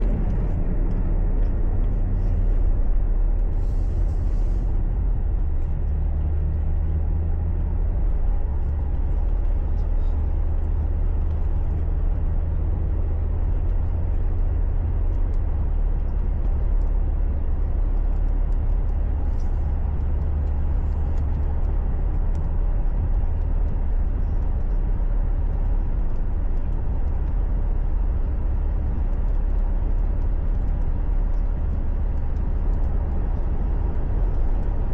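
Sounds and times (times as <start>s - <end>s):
car engine rumble inside cabin: 0.0s - 34.9s.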